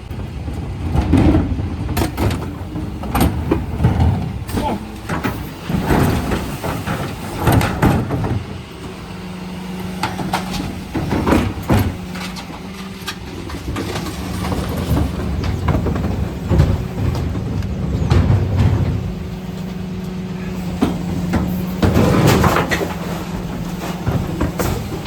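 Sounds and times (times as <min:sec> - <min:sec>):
refuse truck hum: 0:00.0 - 0:25.0
knocks and clatters: 0:09.8 - 0:25.0.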